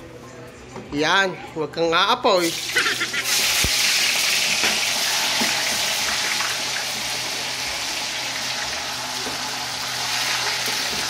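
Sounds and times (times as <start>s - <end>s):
tofu sizzling in hot oil: 2.4s - 11.0s.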